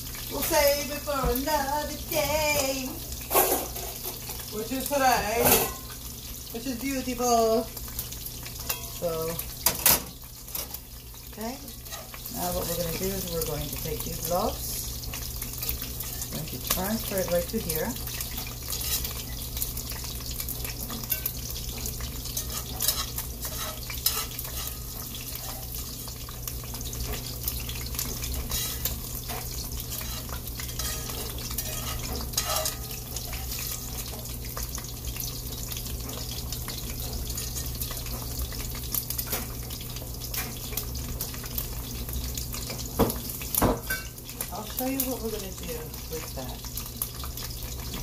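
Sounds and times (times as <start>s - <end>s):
meat sizzling in oil: 0.0s - 48.0s
utensil scraping a pan: 11.7s - 12.8s, 18.2s - 19.6s, 21.0s - 26.1s, 27.8s - 34.3s.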